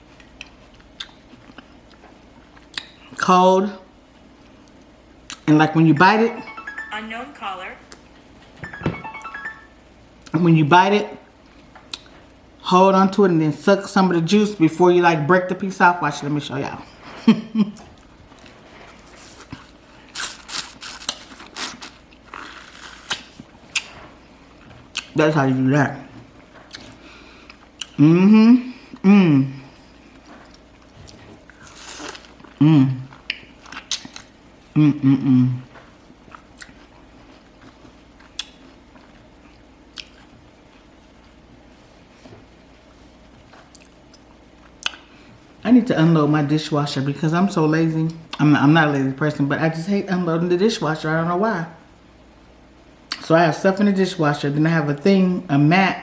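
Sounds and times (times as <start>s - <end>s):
person chewing: 0.2s - 3.0s, 17.8s - 25.1s, 26.6s - 28.2s, 29.9s - 34.4s, 36.2s - 40.9s, 43.6s - 45.1s
biting and slurping watermelon: 19.0s - 23.9s.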